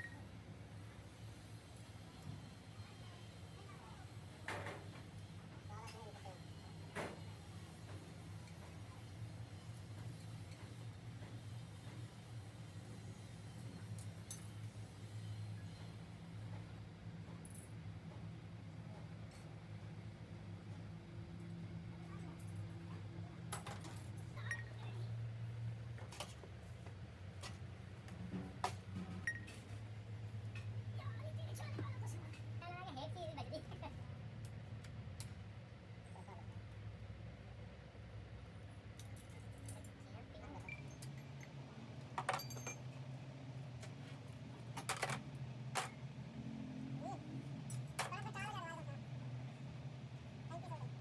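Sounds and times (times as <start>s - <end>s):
low steady hum: 36.0s - 51.0s
metal parts clinking: 42.2s - 42.9s.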